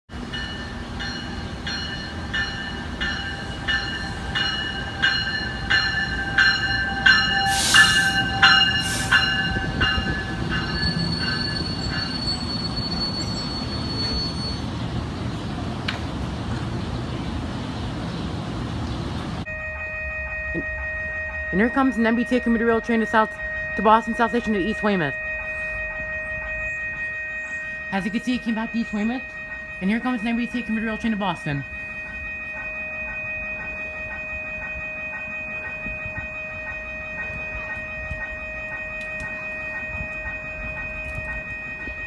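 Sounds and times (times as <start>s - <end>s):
railroad bell ringing: 0.1s - 14.8s, 19.4s - 42.0s
train rumbling: 0.1s - 42.0s
short hissing bursts: 7.5s - 8.2s.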